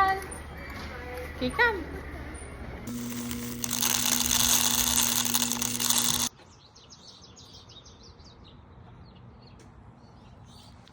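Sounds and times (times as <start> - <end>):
small birds chirping: 6.3 - 10.9.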